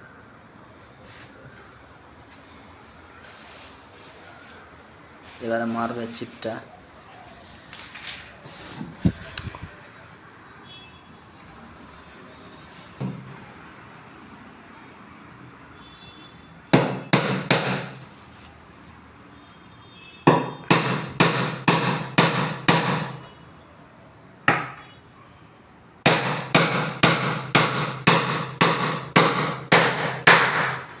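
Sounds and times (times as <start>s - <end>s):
hammer striking wood: 16.7s - 18.0s, 20.2s - 23.2s, 24.4s - 24.8s, 26.0s - 31.0s.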